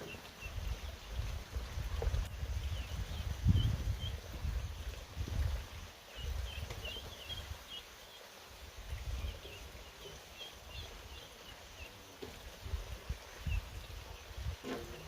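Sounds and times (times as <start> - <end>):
small birds chirping: 0.0 - 4.9, 5.8 - 15.0
wind rumble on microphone: 0.4 - 7.6, 8.8 - 9.5, 12.5 - 15.0.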